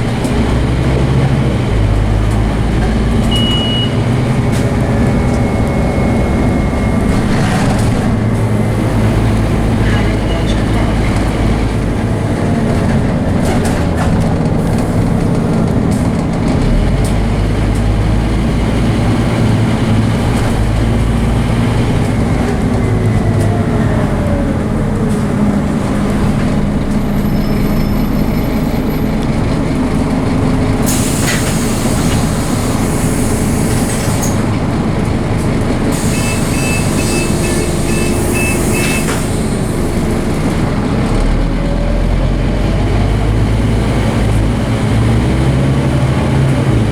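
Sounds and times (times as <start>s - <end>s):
bus diesel engine under load: 0.0s - 46.9s
hiss: 30.9s - 34.4s, 35.9s - 39.8s.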